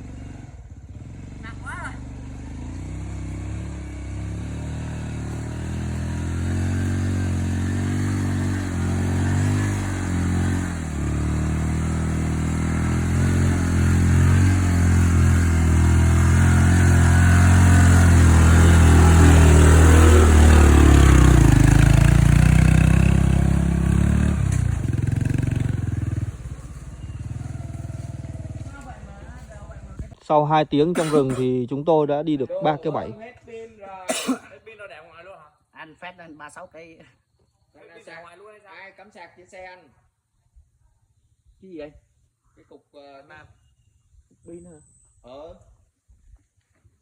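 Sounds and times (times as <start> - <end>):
off-road motorcycle engine revving: 0.0 - 33.5.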